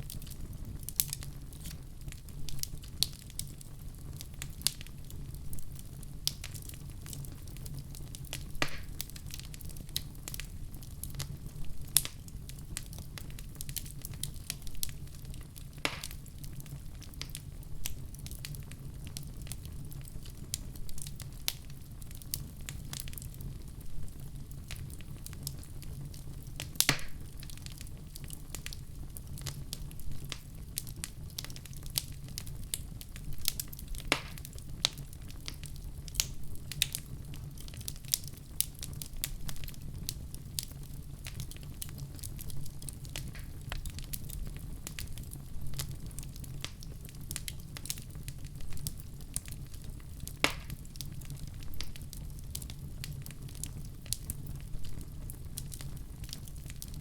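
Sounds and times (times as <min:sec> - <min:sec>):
low rumble of flames: 0:00.0 - 0:57.0
wood fire crackling: 0:00.0 - 0:57.0
sharp pops and snaps: 0:08.4 - 0:09.4, 0:15.8 - 0:16.2, 0:26.8 - 0:27.3, 0:33.5 - 0:35.6, 0:50.4 - 0:50.8.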